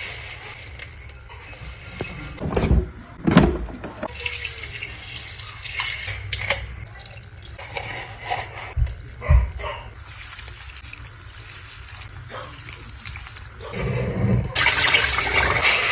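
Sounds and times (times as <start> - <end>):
containers knocking down: 2.4 - 4.1
liquid splashing and trickling: 10.0 - 13.7.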